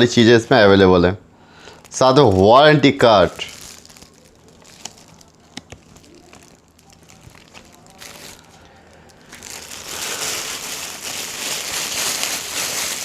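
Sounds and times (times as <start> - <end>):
plastic packaging crinkling: 1.6 - 13.0.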